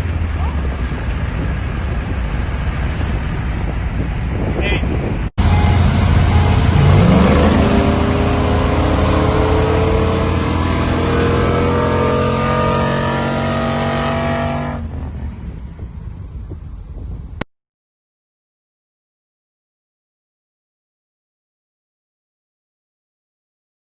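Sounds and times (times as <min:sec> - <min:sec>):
truck engine accelerating: 0:00.0 - 0:17.4.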